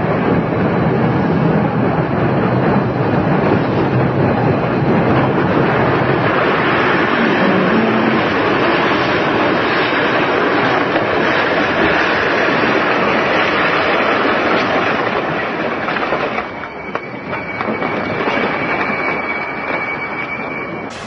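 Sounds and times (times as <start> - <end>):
train noise and dragged wreckage: 0.0 - 21.0
high-pitched squeal: 6.1 - 10.0, 16.5 - 21.0.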